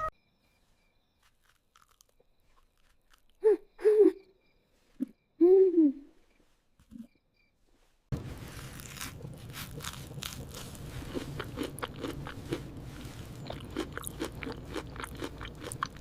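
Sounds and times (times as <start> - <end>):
crunchy crackling clicks: 1.2 - 3.4.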